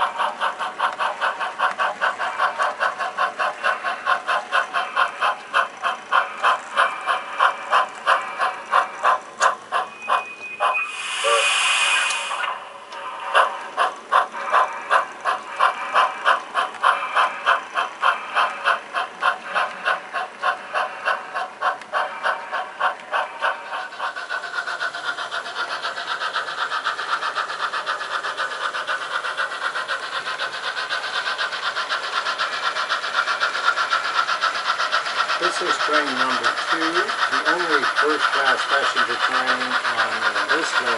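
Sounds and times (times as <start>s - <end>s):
model steam locomotive chuffing: 0.0s - 40.9s.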